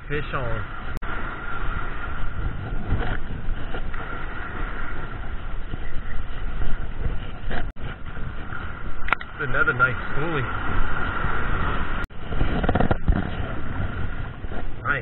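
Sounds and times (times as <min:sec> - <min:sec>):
surf rushing: 0:00.0 - 0:15.0
wind buffeting microphone: 0:00.0 - 0:15.0.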